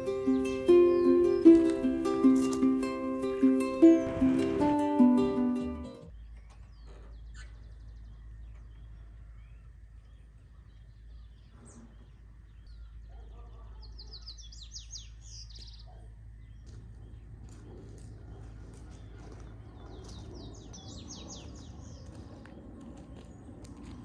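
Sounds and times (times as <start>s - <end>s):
bird singing high rising chirps: 0.0s - 6.1s, 20.4s - 22.2s
ukulele tune: 0.0s - 6.1s
bird chirps: 0.0s - 17.2s, 19.5s - 22.4s.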